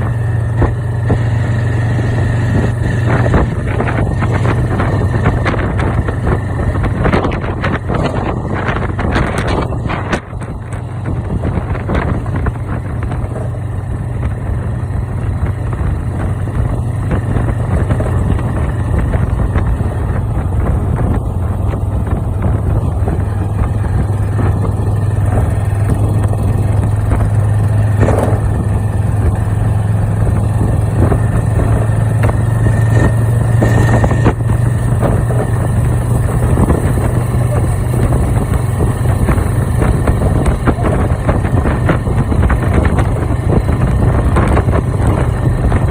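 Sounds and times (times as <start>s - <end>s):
engine running: 0.0s - 45.9s.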